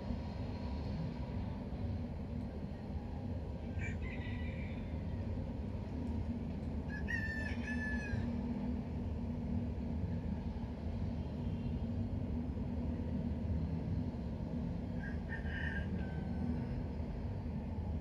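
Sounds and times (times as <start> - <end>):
rooster crowing: 3.8 - 4.9, 6.9 - 8.3.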